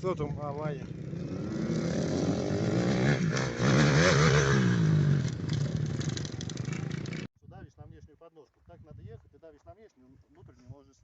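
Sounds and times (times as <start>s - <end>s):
motocross bike engine revving: 0.6s - 7.3s.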